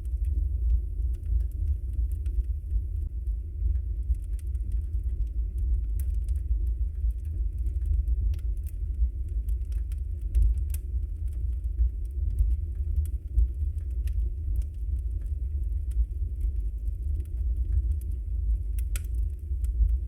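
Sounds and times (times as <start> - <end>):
logs crackling and popping: 0.0 - 20.0.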